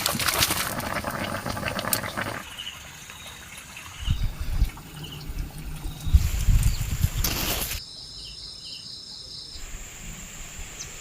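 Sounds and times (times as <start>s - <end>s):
water splashing and trickling: 0.0s - 7.8s
crickets chirping: 5.8s - 11.0s.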